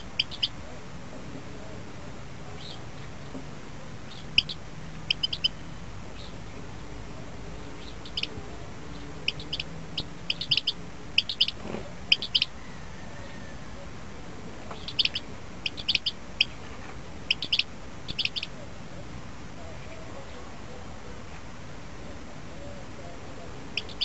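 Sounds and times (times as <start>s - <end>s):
small songbird chirping: 0.0s - 0.6s, 2.5s - 3.3s, 4.0s - 6.5s, 7.5s - 13.5s, 14.7s - 18.6s, 23.7s - 24.0s.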